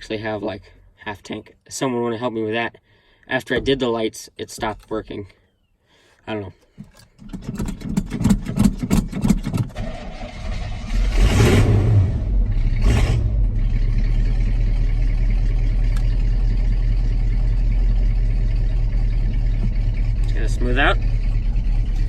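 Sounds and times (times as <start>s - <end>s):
truck engine cranking: 6.8s - 22.0s
truck engine revving and idling: 8.3s - 22.0s.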